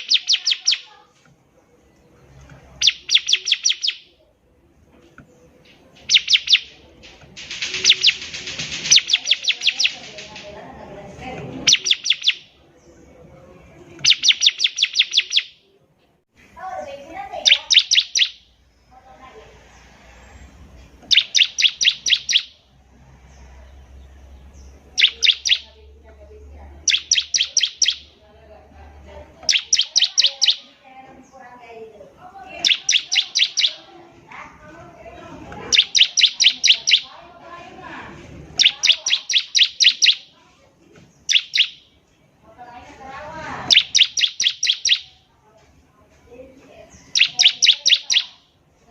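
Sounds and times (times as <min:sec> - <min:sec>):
bird singing high rapid trills: 0:00.0 - 0:00.9, 0:02.8 - 0:04.1, 0:06.0 - 0:06.8, 0:07.4 - 0:10.4, 0:11.6 - 0:12.6, 0:14.0 - 0:15.6, 0:17.3 - 0:18.5, 0:21.1 - 0:22.7, 0:23.9 - 0:25.8, 0:26.8 - 0:28.2, 0:29.5 - 0:30.7, 0:32.5 - 0:33.9, 0:35.7 - 0:37.2, 0:38.5 - 0:40.3, 0:41.2 - 0:41.9, 0:43.6 - 0:45.2, 0:47.0 - 0:48.5
bird twittering warble: 0:00.0 - 0:00.9, 0:02.8 - 0:04.1, 0:06.0 - 0:06.8, 0:07.4 - 0:10.4, 0:11.6 - 0:12.5, 0:14.0 - 0:15.6, 0:17.4 - 0:18.4, 0:21.0 - 0:22.5, 0:23.9 - 0:25.8, 0:26.8 - 0:28.2, 0:29.5 - 0:30.7, 0:32.5 - 0:33.9, 0:35.7 - 0:37.1, 0:38.5 - 0:40.3, 0:41.2 - 0:41.8, 0:43.6 - 0:45.2, 0:46.9 - 0:48.4.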